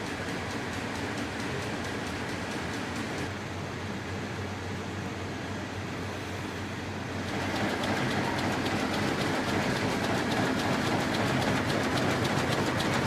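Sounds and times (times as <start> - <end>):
fast even machine clatter: 0.0 - 3.4, 7.1 - 13.0.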